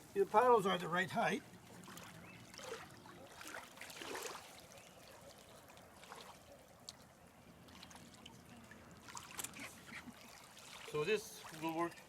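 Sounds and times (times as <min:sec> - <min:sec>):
paddles splashing water: 0:00.0 - 0:12.0.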